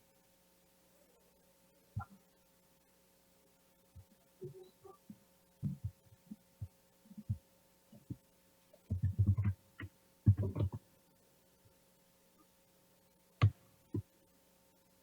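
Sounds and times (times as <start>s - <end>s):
faint electrical hum: 0.0s - 15.0s
low muffled thumps: 10.3s - 10.8s.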